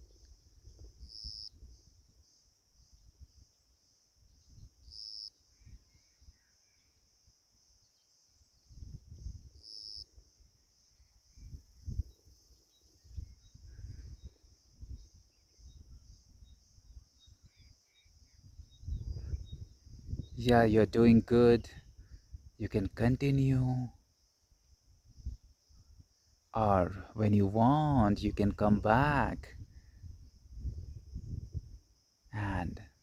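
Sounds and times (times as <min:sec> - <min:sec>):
insects chirring: 0:00.0 - 0:33.0
faint chirps: 0:01.0 - 0:08.9, 0:09.6 - 0:24.4.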